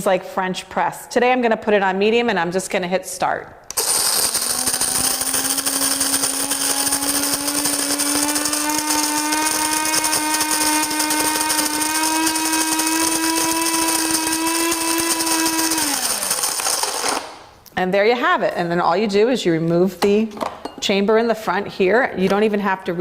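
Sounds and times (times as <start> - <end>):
coffee grinder grinding beans: 3.7 - 17.5.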